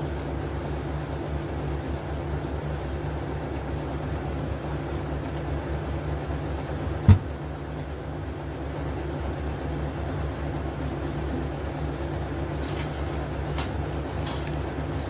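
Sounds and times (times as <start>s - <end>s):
low motor hum: 0.0s - 15.0s
loud thump: 7.1s - 7.4s.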